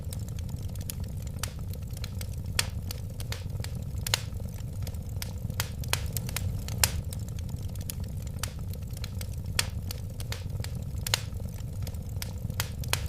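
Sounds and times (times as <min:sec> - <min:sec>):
steady low rumble: 0:00.0 - 0:13.0
wood fire crackling: 0:00.0 - 0:13.0.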